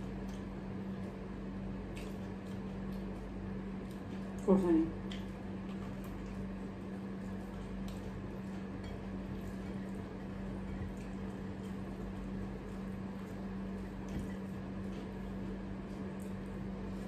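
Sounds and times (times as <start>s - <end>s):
soft chewing: 0.0s - 17.0s
steady low hum: 0.0s - 17.0s.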